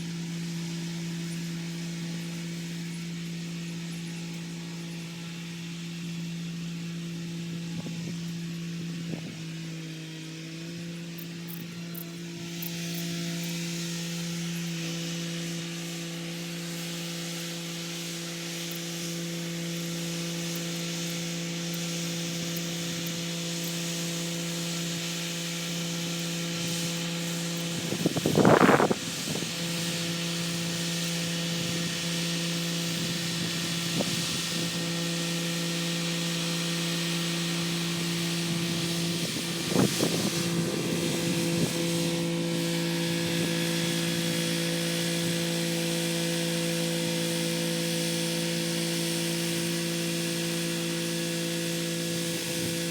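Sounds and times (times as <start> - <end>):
rotary tiller hissing in soil: 0.0 - 52.9
tractor engine running: 25.4 - 52.9.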